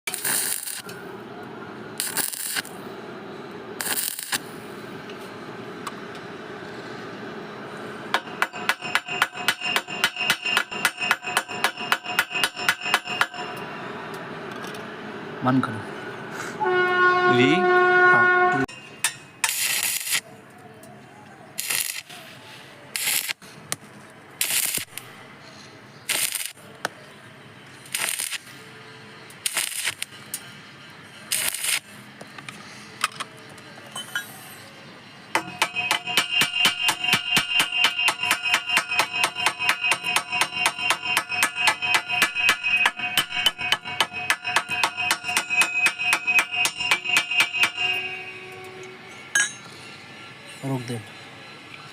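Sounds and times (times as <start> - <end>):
arc welding hiss: 0.1 - 1.0, 2.0 - 2.9, 3.8 - 4.8, 19.4 - 20.2, 21.6 - 23.4, 24.4 - 25.0, 26.0 - 26.6, 27.7 - 32.1
steady hum: 0.1 - 20.2.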